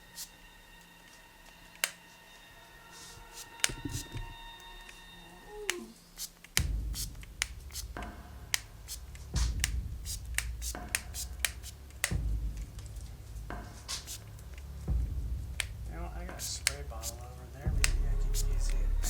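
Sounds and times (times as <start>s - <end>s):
sharp clicks and taps: 3.4s - 4.4s, 5.7s - 18.8s
low steady rumble: 6.6s - 19.0s.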